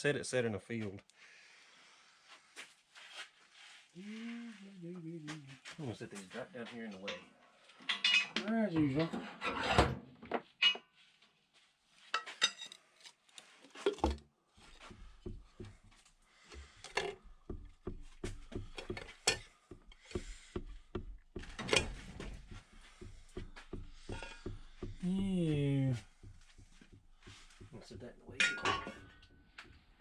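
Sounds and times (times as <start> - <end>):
metal parts and tools clinking: 7.9 - 8.4, 12.2 - 14.2, 28.4 - 29.3.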